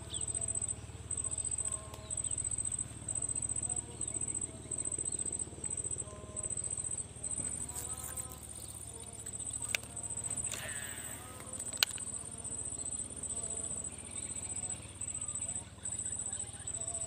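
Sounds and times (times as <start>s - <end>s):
insects trilling: 0.0s - 17.0s
low pulsing hum: 0.0s - 17.0s
sharp clicks: 7.3s - 13.0s.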